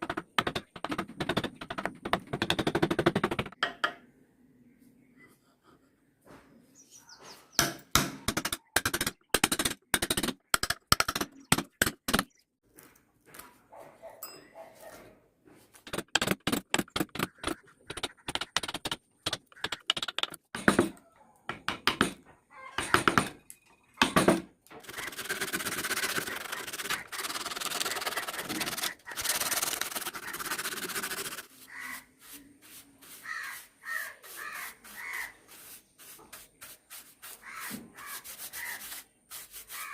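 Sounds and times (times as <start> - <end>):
sharp knocks on wood: 21.5 - 23.3
abrasive rubbing on wood: 24.8 - 39.9.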